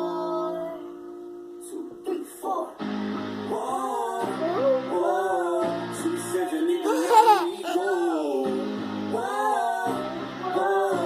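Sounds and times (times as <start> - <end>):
guitar: 0.0 - 11.0
person singing: 3.5 - 11.0.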